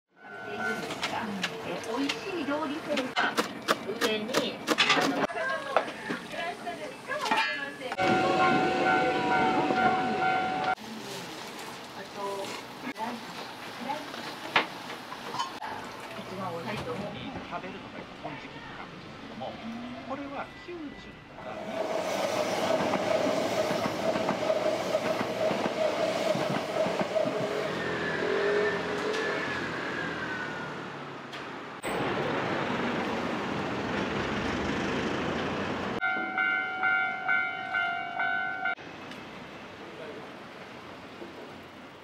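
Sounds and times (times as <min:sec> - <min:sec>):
level crossing warning bell: 0:00.2 - 0:01.1, 0:07.4 - 0:10.8, 0:36.0 - 0:38.8
train rumbling past on rails: 0:07.9 - 0:10.8, 0:21.3 - 0:42.0
falling squeal: 0:27.3 - 0:30.9.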